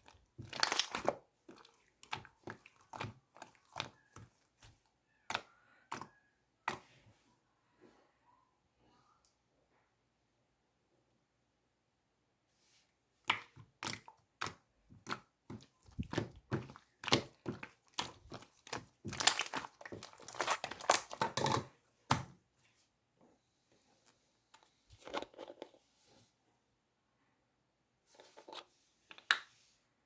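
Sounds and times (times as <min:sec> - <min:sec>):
slime crackling and popping: 0:00.4 - 0:01.1, 0:15.9 - 0:22.2.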